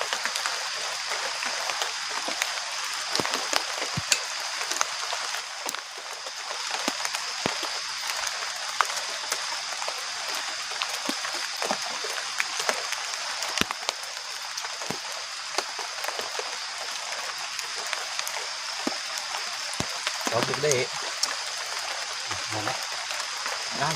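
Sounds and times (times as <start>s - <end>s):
heavy rain hissing: 0.0s - 23.9s
raindrops tapping on surfaces: 0.0s - 23.9s.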